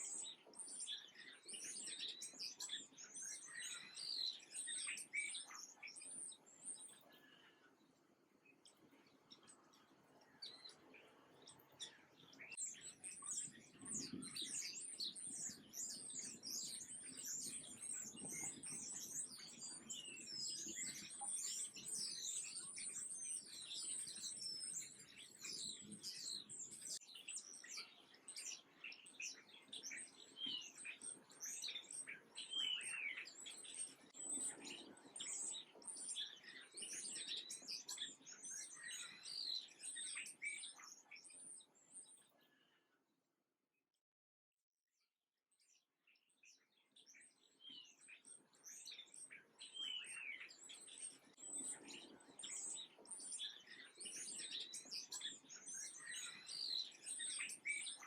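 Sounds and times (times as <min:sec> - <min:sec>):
small birds chirping: 0:00.0 - 0:43.0, 0:45.5 - 0:58.0.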